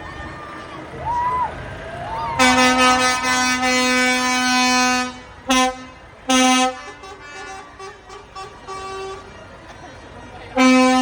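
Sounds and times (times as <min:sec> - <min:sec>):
vehicle horn blasts: 0:02.4 - 0:09.3, 0:10.6 - 0:11.0
faint different-pitched horn: 0:02.4 - 0:09.4.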